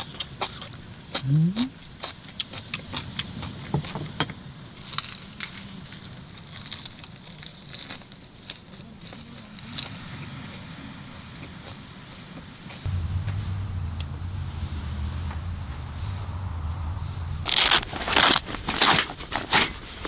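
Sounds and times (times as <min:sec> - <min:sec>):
faint steady hiss: 0:12.9 - 0:19.0.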